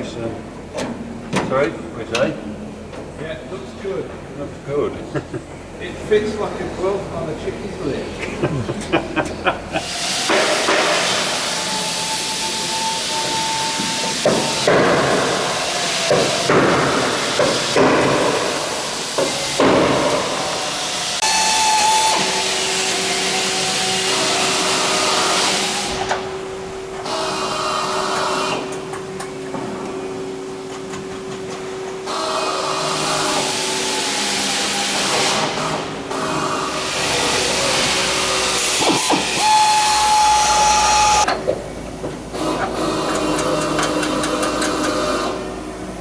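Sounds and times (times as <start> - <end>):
whirring power tool: 9.8 - 28.9, 32.0 - 41.3.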